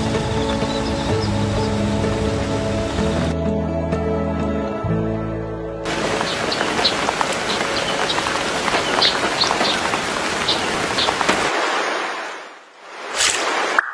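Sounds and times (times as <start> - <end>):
rain patter: 0.0 - 3.4, 5.9 - 13.8.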